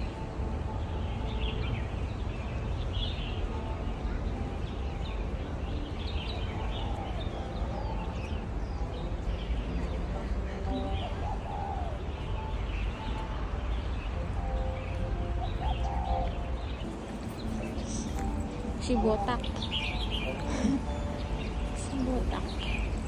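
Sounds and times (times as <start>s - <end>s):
birds chirping and calling: 0.0s - 23.0s.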